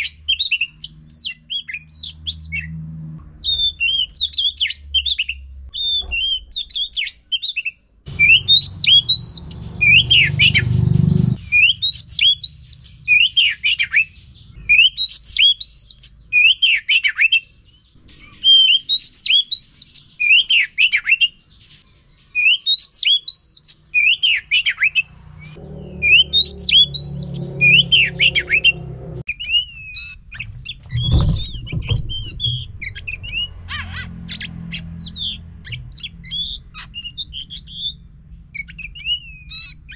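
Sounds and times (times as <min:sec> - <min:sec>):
bird singing whistled phrases: 0:03.4 - 0:10.7, 0:11.4 - 0:17.5, 0:18.1 - 0:21.4, 0:22.3 - 0:25.1, 0:38.6 - 0:39.9
low background rumble: 0:25.4 - 0:39.9
thump: 0:30.4 - 0:33.0.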